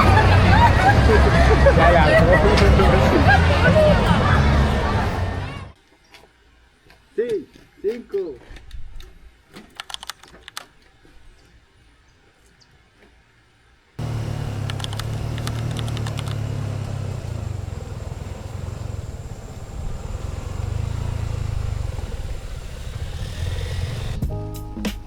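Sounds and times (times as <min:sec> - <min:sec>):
vehicle road noise rumble: 0:00.0 - 0:05.7, 0:14.0 - 0:24.2
faint clicks: 0:09.6 - 0:10.7, 0:14.0 - 0:24.2.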